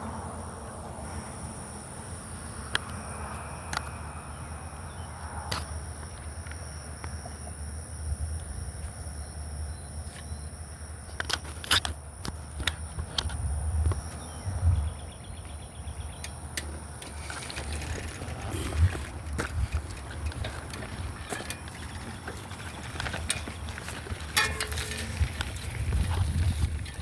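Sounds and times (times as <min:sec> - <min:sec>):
bicycle clicks and knocks: 0:11.1 - 0:27.0
wind buffeting microphone: 0:12.9 - 0:27.0.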